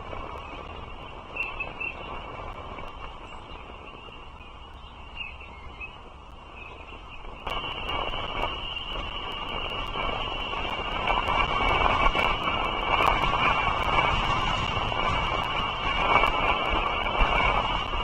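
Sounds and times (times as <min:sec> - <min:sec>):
outdoor hiss and rumble: 0:00.0 - 0:18.0.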